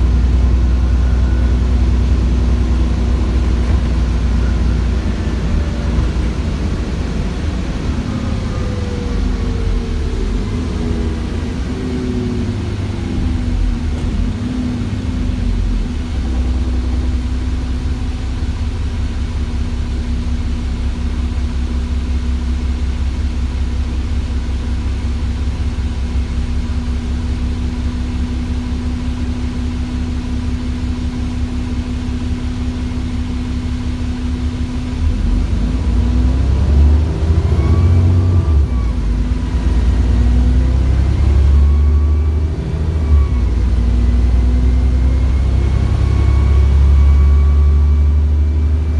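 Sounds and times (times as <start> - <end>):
bus whine falling in pitch: 0.0 - 18.3
diesel engine idling: 0.0 - 48.9.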